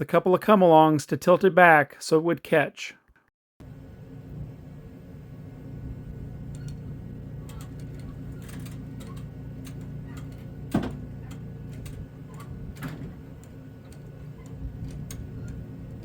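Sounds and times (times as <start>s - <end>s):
engine humming: 3.6s - 16.0s.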